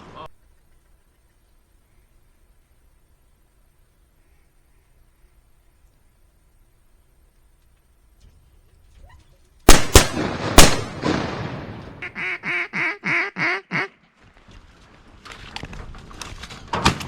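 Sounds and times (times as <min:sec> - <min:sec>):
shotgun shots echoing: 0:09.7 - 0:12.0
duck quacking: 0:12.0 - 0:14.0.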